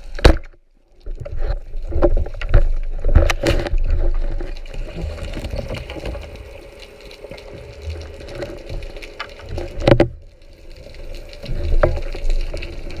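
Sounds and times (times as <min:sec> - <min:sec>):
water sloshing and bubbling: 0:00.0 - 0:13.0.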